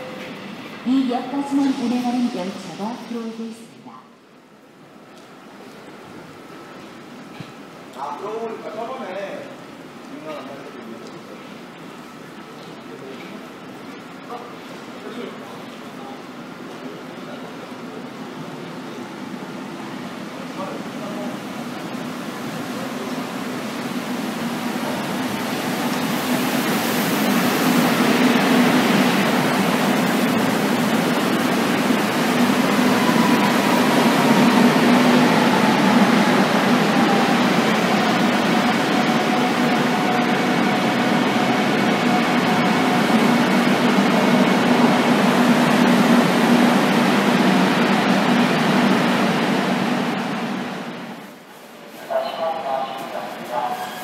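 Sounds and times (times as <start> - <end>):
train wheels rumbling: 15.0 - 54.0
faint falling train whine: 15.1 - 51.2.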